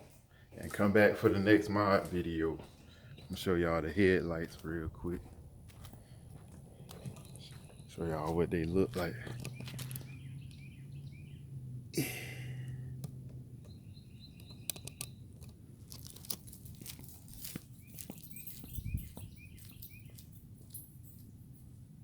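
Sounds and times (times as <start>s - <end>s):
small bird chirping: 9.0s - 11.6s, 13.6s - 15.5s, 17.6s - 20.4s
rustling: 15.8s - 18.8s.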